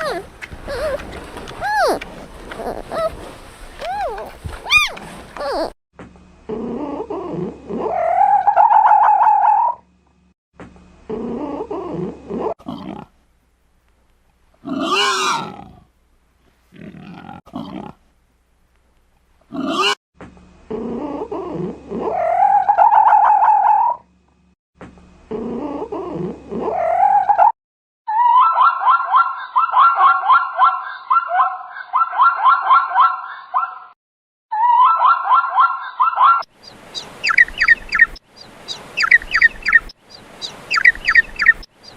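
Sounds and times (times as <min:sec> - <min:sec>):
loud drawn-out animal calls: 0:14.6 - 0:15.8, 0:19.5 - 0:20.0, 0:28.1 - 0:33.8.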